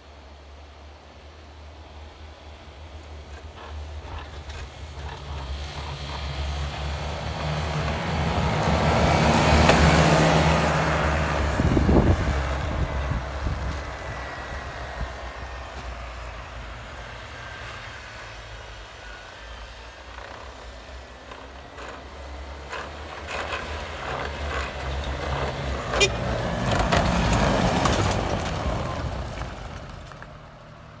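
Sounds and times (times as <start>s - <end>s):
low engine hum: 0.0s - 31.0s
tracks rattling and clicking: 3.0s - 14.1s, 19.8s - 30.3s.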